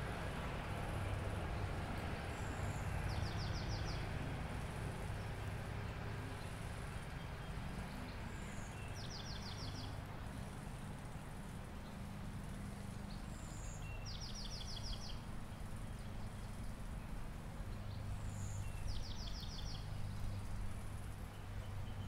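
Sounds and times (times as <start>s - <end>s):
low rumble of distant traffic: 0.0s - 22.0s
songbird trilling: 13.1s - 15.3s, 18.3s - 20.0s.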